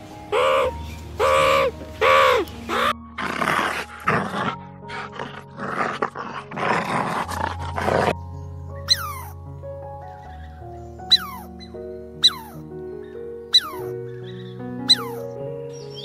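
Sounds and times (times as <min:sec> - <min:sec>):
background music: 0:00.0 - 0:16.0
meerkat calls: 0:00.3 - 0:03.0, 0:11.1 - 0:11.5, 0:12.2 - 0:12.6, 0:13.5 - 0:13.9, 0:14.9 - 0:15.2.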